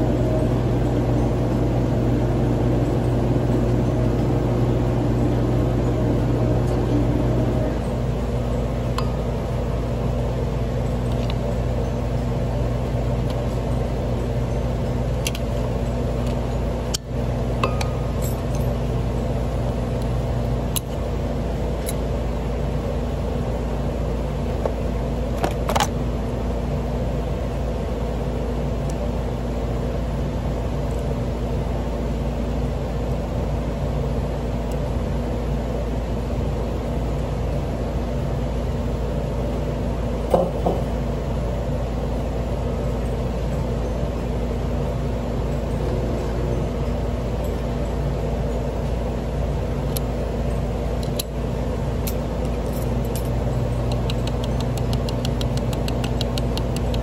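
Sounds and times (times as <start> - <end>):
machine humming: 0.0 - 57.0
sharp metallic clicks: 52.0 - 57.0.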